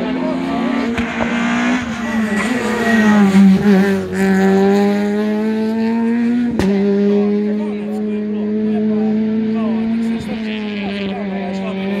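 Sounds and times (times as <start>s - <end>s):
rally car engine high revs: 0.0s - 12.0s.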